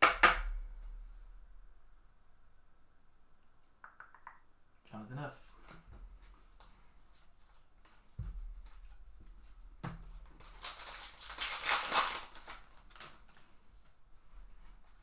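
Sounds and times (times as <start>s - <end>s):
foil wrapper crinkling: 10.3s - 14.0s.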